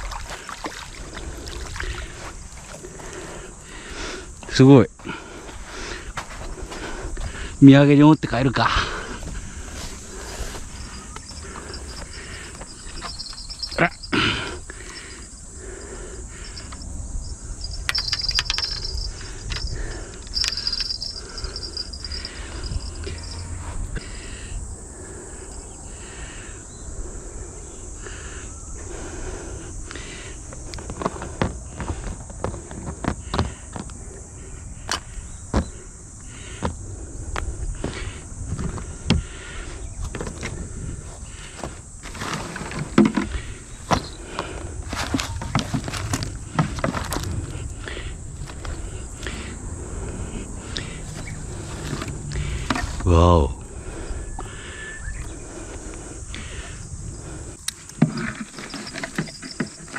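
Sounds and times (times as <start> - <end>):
insects chirping: 0.0 - 59.9
fishing gear rattling: 9.2 - 23.4, 40.0 - 53.1, 57.4 - 59.9
rustling: 41.1 - 47.8, 50.9 - 53.1.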